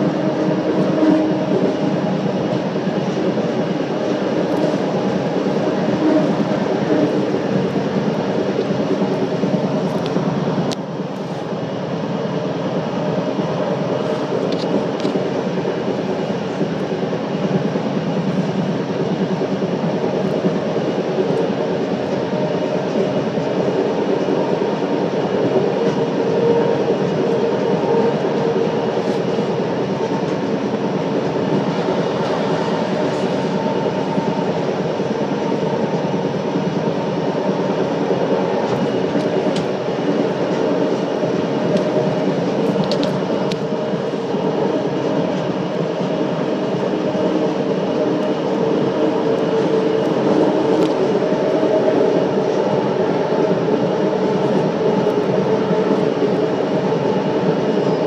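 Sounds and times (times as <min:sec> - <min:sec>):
rail running noise: 0:00.0 - 0:58.0.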